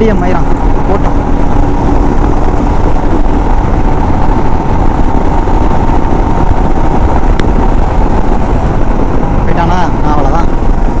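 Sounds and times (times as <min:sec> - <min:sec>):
motorcycle engine: 0:00.0 - 0:11.0
wind rush on microphone: 0:00.0 - 0:11.0.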